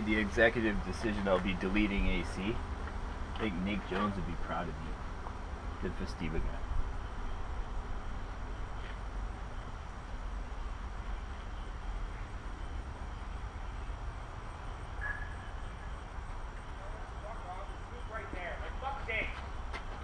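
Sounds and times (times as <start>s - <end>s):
faint background hiss: 0.0s - 19.8s
steady low rumble: 0.0s - 20.0s.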